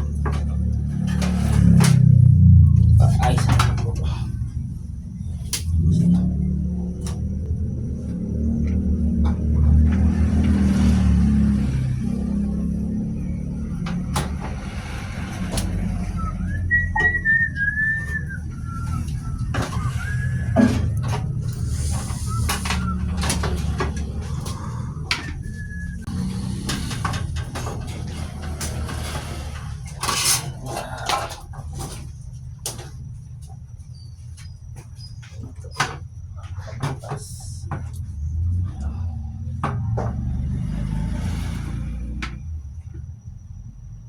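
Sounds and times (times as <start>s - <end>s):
steady low rumble: 0.0s - 35.0s
steady low hum: 0.0s - 44.0s
whistled tune: 15.8s - 23.8s, 25.2s - 26.4s
clicks and knocks of tools: 18.9s - 32.9s.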